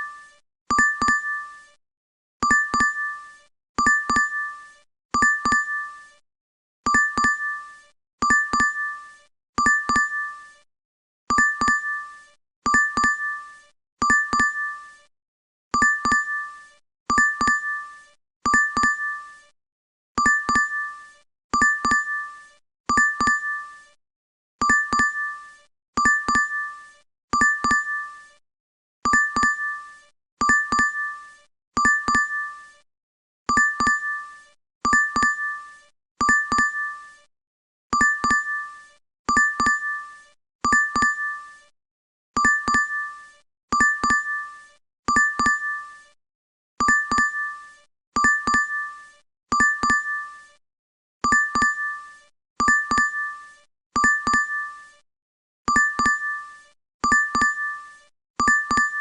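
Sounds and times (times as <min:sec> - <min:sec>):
two-tone notification chime: 0:00.7 - 0:01.4, 0:46.8 - 0:47.4, 0:54.0 - 0:54.6, 0:55.7 - 0:56.3, 0:57.0 - 0:57.7, 0:58.4 - 0:59.0.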